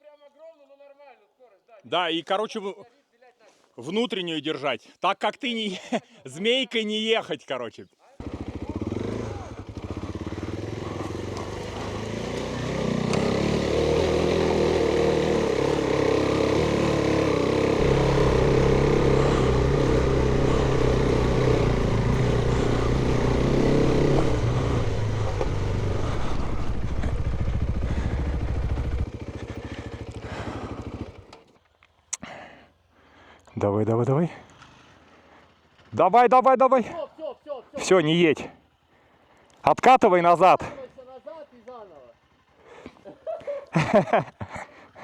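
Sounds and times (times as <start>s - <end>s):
motorcycle engine under load: 8.2s - 31.9s.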